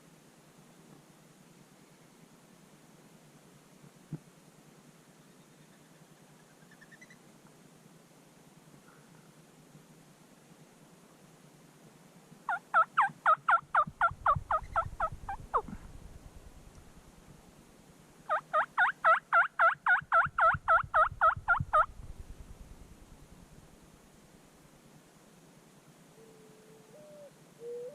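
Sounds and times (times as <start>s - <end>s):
turkey calling: 12.5s - 15.8s, 18.3s - 21.9s.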